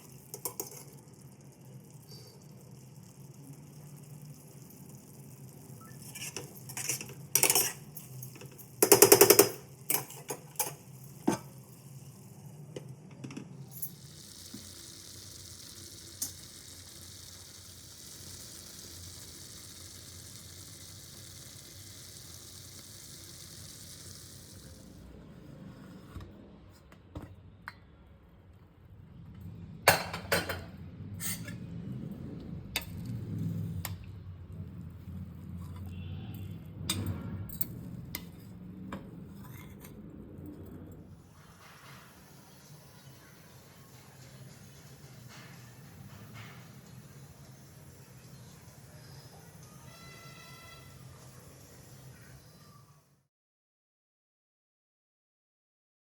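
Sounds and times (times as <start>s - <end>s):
steady sizzling hiss: 0.0s - 26.1s, 41.1s - 52.8s
metal spoon scraping a pan: 0.1s - 1.0s, 5.8s - 12.0s, 31.2s - 31.6s.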